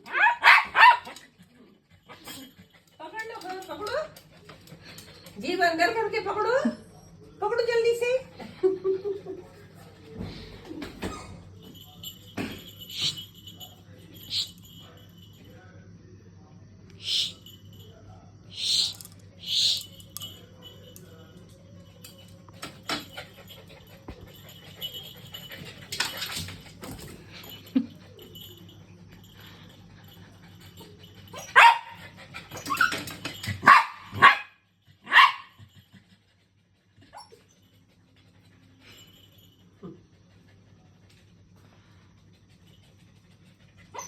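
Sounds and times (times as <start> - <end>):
dog barking: 0.0 - 1.2, 31.4 - 32.0, 33.6 - 35.6.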